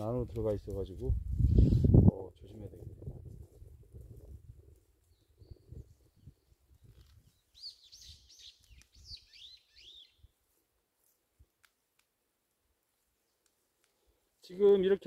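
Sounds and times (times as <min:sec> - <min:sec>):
small songbird chirping: 0:05.0 - 0:10.3.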